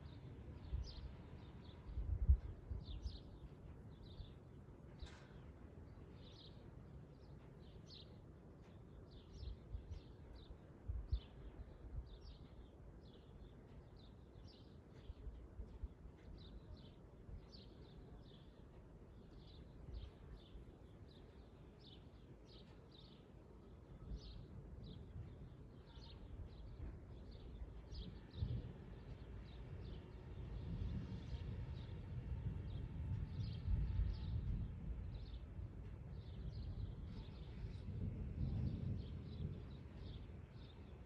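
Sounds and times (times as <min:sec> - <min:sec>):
small birds chirping: 0:02.8 - 0:32.0.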